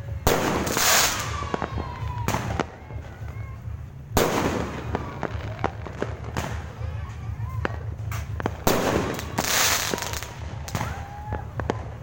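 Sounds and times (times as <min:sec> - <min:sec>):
fireworks bursting: 0:00.0 - 0:12.0
sharp firework cracks: 0:00.1 - 0:12.0.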